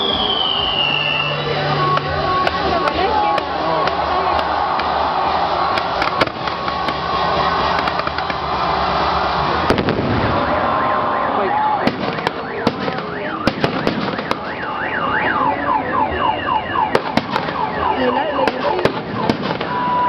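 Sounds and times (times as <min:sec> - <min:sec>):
crowd hubbub: 0:00.0 - 0:20.0
fireworks bangs and crackles: 0:00.0 - 0:20.0
sweeping alarm tone: 0:10.4 - 0:20.0.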